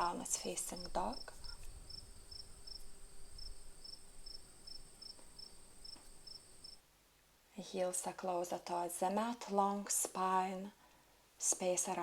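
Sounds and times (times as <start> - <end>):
cricket chirping: 0.8 - 6.8
cricket trilling: 0.8 - 6.8.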